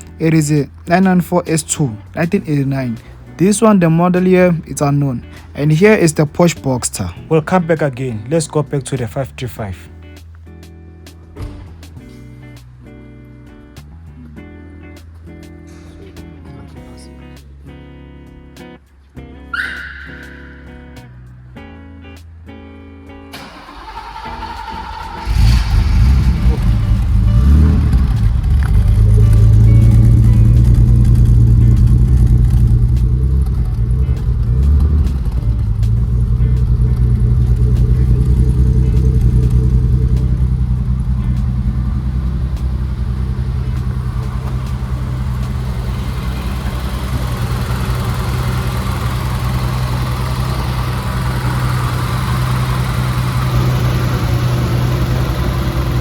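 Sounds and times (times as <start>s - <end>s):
car engine running: 0.0s - 9.6s, 23.3s - 56.0s.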